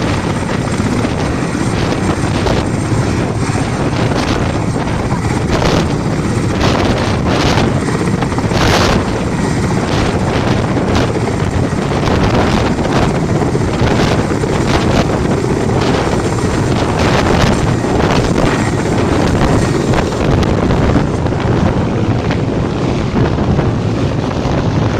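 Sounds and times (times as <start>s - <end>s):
helicopter rotor and engine: 0.0s - 24.9s
wind buffeting microphone: 0.0s - 24.9s.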